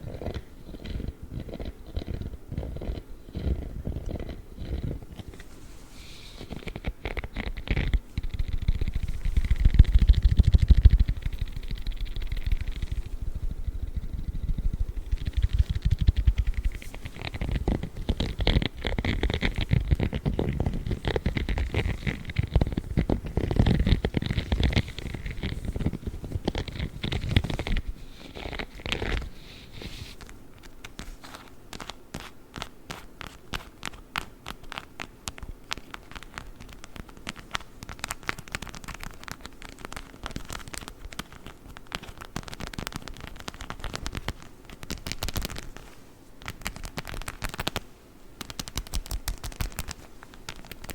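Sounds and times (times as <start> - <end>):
rubber glove scratching microphone: 0.0 - 34.9, 48.4 - 50.9
rapid plastic clicking taps: 6.4 - 29.3, 30.2 - 50.9.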